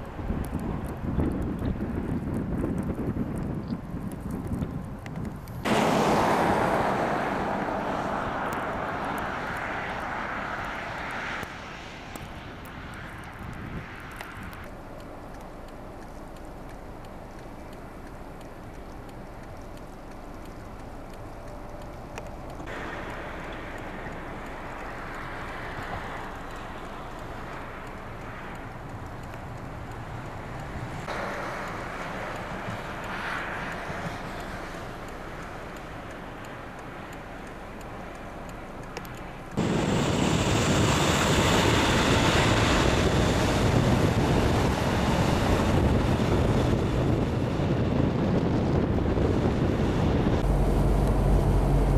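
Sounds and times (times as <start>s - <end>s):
vehicle passing on snowy road: 5.4s - 51.9s
steady background noise: 8.6s - 45.6s
tyres hissing through snow and slush: 31.0s - 35.1s.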